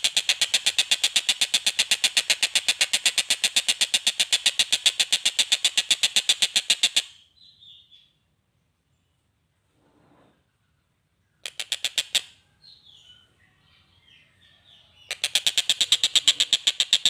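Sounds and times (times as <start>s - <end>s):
bird rattling call: 0.0s - 7.2s, 11.4s - 12.4s, 15.1s - 17.0s.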